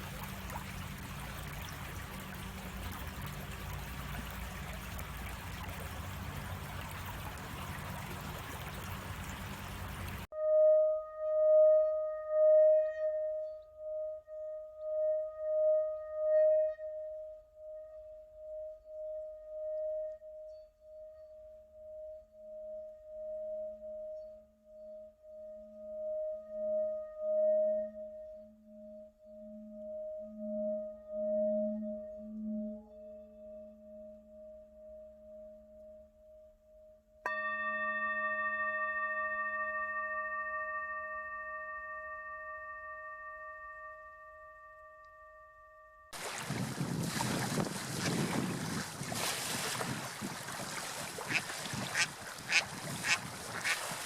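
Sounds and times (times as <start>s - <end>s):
singing bowl struck: 37.2s - 46.2s
singing bowls ringing: 37.2s - 46.2s.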